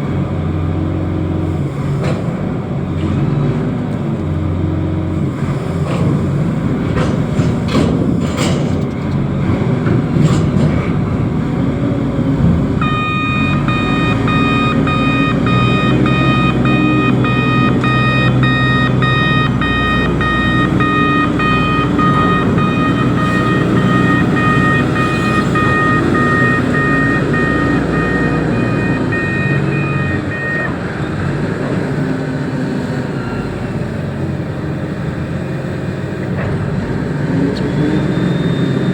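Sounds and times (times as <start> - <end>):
diesel engine running: 0.0 - 38.9
reversing alarm beeping: 12.6 - 31.9.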